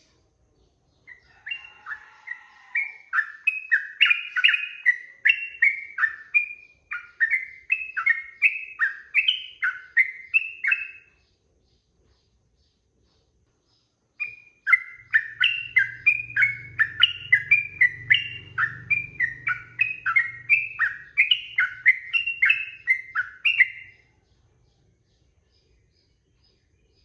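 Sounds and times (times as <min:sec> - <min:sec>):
bulbul singing chirpy notes: 0:02.8 - 0:11.2, 0:14.2 - 0:24.1.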